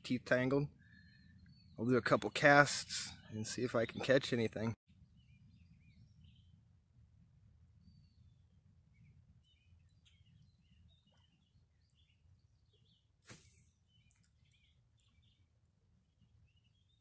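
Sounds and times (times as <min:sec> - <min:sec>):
faint songbird chirps: 0:00.1 - 0:17.0.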